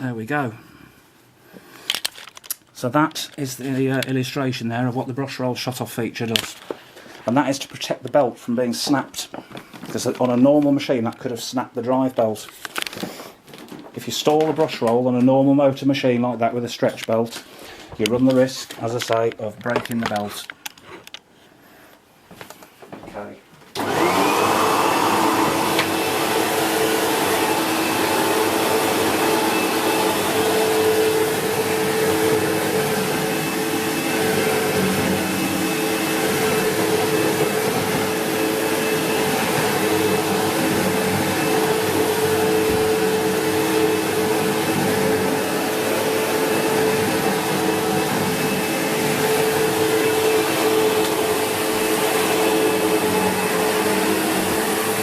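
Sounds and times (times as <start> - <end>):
vacuum cleaner motor whining: 23.8 - 55.0.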